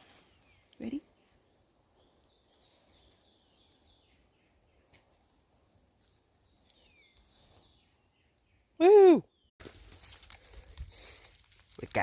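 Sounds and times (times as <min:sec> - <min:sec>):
bird chirps: 0:01.9 - 0:05.1, 0:06.4 - 0:09.5.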